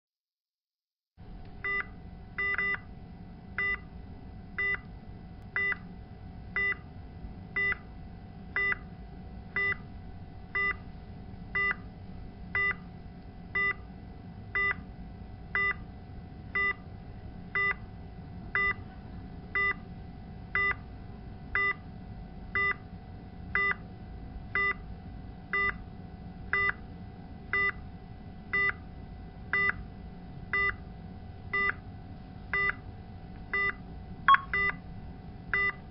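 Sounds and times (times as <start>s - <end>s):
steady hum: 1.2s - 35.9s
patient monitor alarm beeps: 1.6s - 2.9s, 3.6s - 3.9s, 4.6s - 4.8s, 5.6s - 5.8s, 6.6s - 6.8s, 7.6s - 7.8s, 8.6s - 8.8s, 9.6s - 9.8s, 10.6s - 10.8s, 11.6s - 11.8s, 12.6s - 12.8s, 13.6s - 13.8s, 14.6s - 14.8s, 15.6s - 15.8s, 16.6s - 16.8s, 17.6s - 17.8s, 18.6s - 18.8s, 19.6s - 19.8s, 20.6s - 20.8s, 21.6s - 21.8s, 22.6s - 22.8s, 23.6s - 23.8s, 24.6s - 24.8s, 25.6s - 25.8s, 26.6s - 26.8s, 27.6s - 27.8s, 28.6s - 28.8s, 29.5s - 29.8s, 30.6s - 30.8s, 31.6s - 31.8s, 32.6s - 32.8s, 33.5s - 34.8s, 35.6s - 35.8s.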